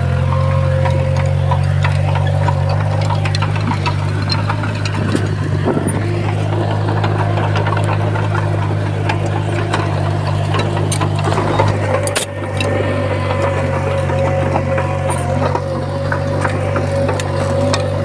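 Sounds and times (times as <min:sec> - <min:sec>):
bulldozer diesel engine running: 0:00.0 - 0:18.0
clicks and clanks: 0:00.0 - 0:18.0.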